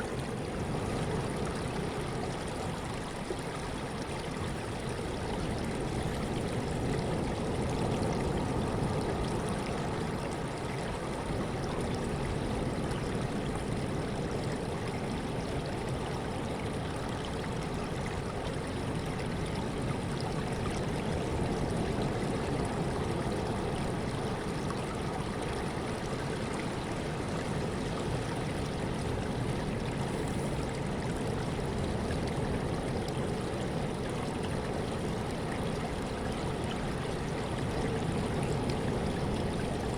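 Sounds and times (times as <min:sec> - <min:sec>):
sea water rushing: 0:25.0 - 0:39.9.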